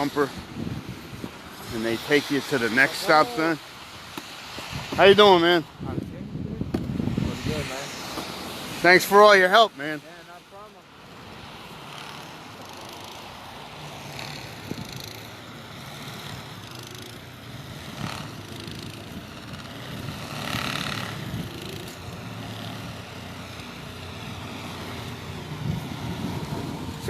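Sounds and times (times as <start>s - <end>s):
hiss: 1.2s - 5.5s, 11.8s - 17.2s
engine running: 6.7s - 27.0s.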